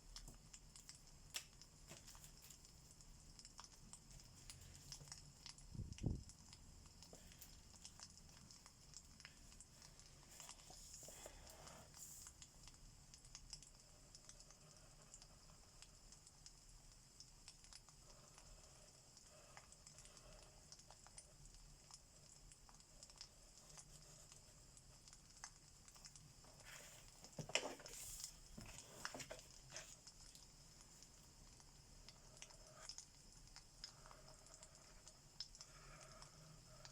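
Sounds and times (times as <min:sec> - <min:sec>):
fireplace crackling: 0:16.1 - 0:36.9.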